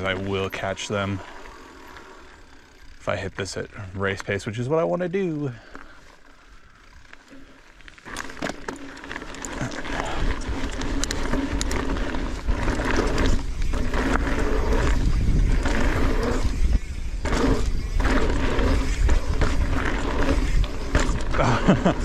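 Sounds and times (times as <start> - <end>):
bike tyres rolling on dirt: 0.0 - 22.0
wind on microphone: 12.3 - 21.9.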